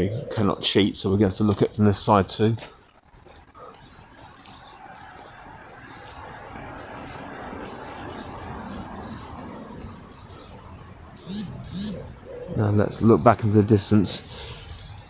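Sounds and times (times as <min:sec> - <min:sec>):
outdoor background noise: 0:00.0 - 0:15.0
high bird chirps: 0:05.9 - 0:13.4.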